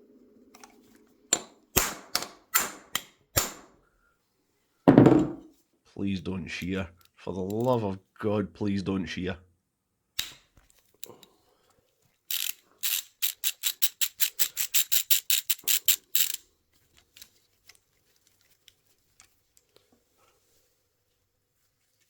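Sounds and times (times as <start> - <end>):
socket ratchet clicking: 12.3 - 16.4.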